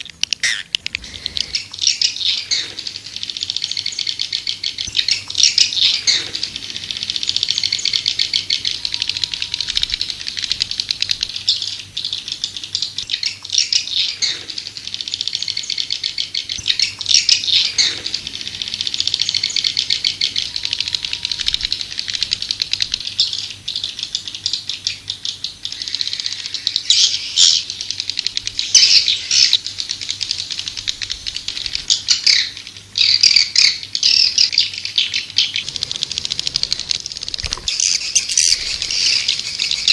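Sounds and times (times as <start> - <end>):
swiftlets chattering: 35.6 - 39.9.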